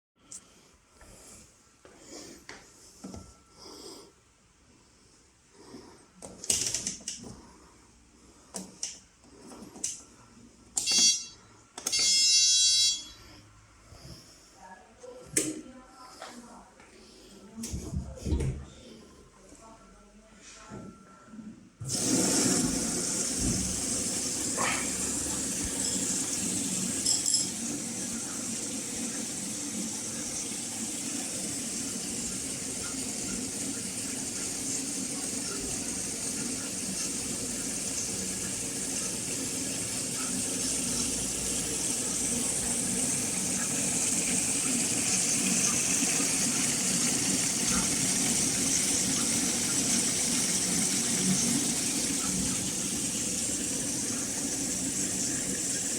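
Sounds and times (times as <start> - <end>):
washing machine filling with water: 21.8 - 55.9.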